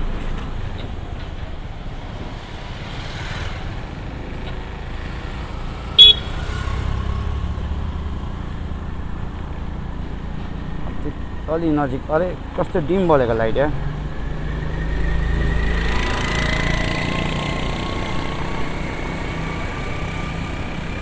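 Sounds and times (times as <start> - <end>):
street traffic: 0.0 - 21.0
short loud horn toot: 6.0 - 6.4.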